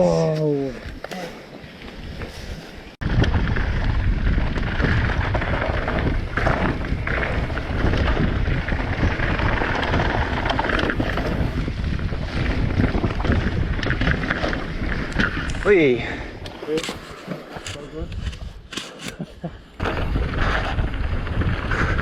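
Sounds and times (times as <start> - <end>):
bike clattering over rough trail: 0.8 - 22.0
wind buffeting microphone: 2.0 - 18.7, 19.5 - 22.0.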